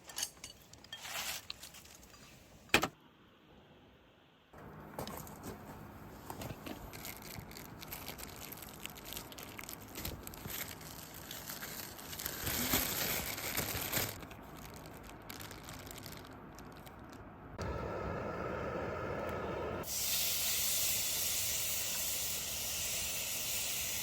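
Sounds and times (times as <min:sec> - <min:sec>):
rustling and crinkling: 0:00.0 - 0:02.7, 0:04.6 - 0:17.3.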